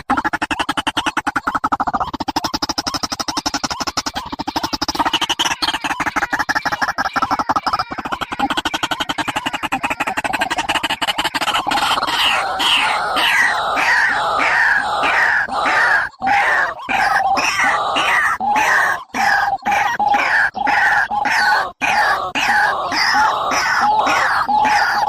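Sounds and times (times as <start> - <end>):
bird rattling trill: 0.0 - 21.4
short downward bird calls: 11.4 - 25.0.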